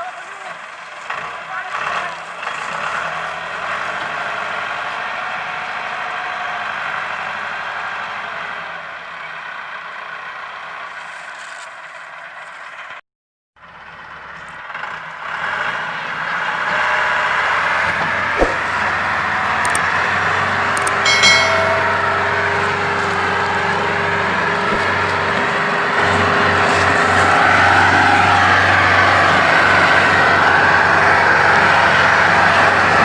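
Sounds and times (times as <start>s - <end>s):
tractor diesel engine under load: 0.0s - 13.0s, 13.6s - 21.0s, 22.0s - 33.0s
sharp click: 19.6s - 19.9s, 20.8s - 22.2s
short high tone: 20.8s - 23.1s.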